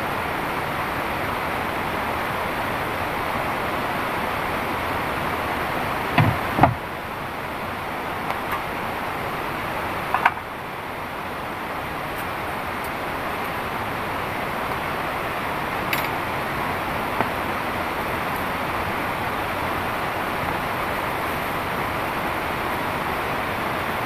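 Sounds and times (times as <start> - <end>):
heavy rain pouring: 0.0 - 24.0
short knocks: 6.2 - 6.8.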